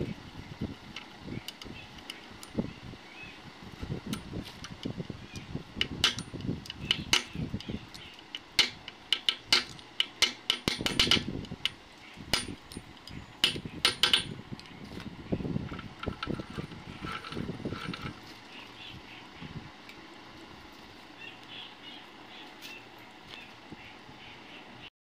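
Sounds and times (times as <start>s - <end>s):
hand tools clinking on metal: 8.0s - 14.4s.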